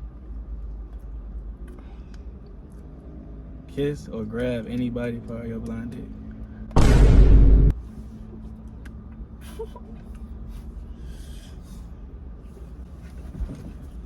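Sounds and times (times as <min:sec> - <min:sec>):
low steady hum: 0:06.0 - 0:14.0
loud boom: 0:06.8 - 0:07.7.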